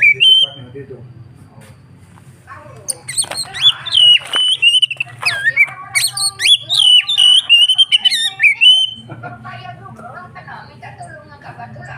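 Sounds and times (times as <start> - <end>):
songbird singing whistled phrases: 0.0 - 0.7, 2.9 - 9.1.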